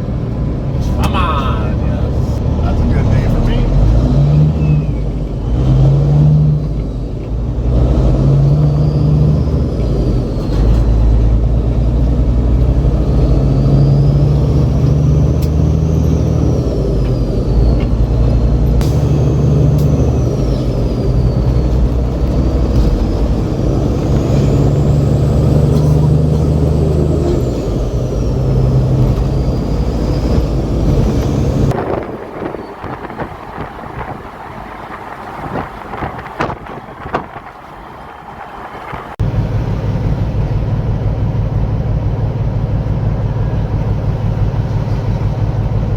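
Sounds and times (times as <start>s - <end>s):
truck diesel engine running: 0.0s - 45.9s
faint whistle: 4.6s - 5.1s.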